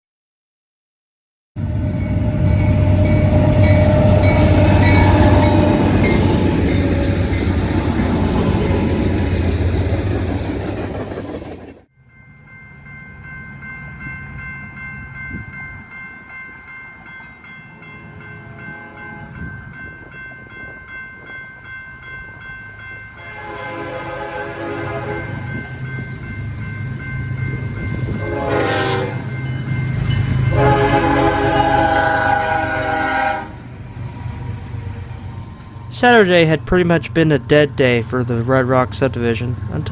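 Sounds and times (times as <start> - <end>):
locomotive horn: 1.6 - 7.5, 23.2 - 25.6, 28.2 - 29.3, 30.3 - 33.6
freight train rumbling past: 1.6 - 39.9.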